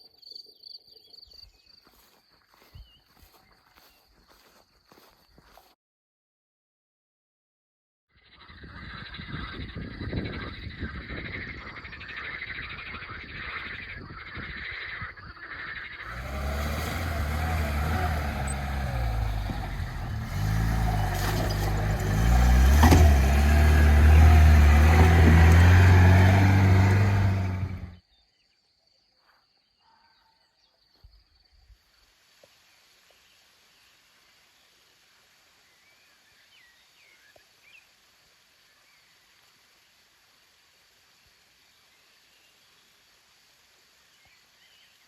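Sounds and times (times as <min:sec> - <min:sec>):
car engine running under load: 0:16.1 - 0:28.0.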